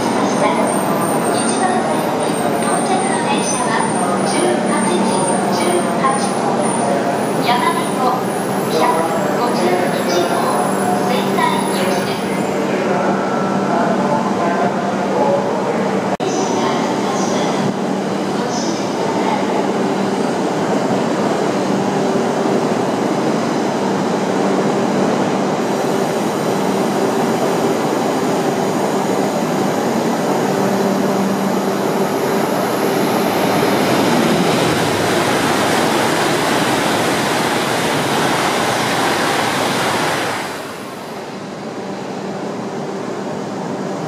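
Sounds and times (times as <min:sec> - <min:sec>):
train rail and air rush: 0:17.3 - 0:44.0.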